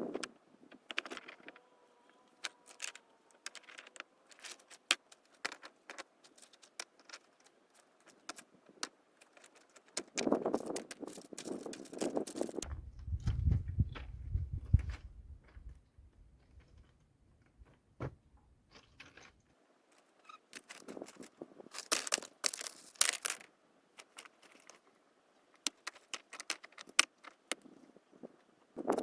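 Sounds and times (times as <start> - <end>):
crunching and crackling handling: 0.8 - 12.7, 19.9 - 24.9, 25.5 - 27.8.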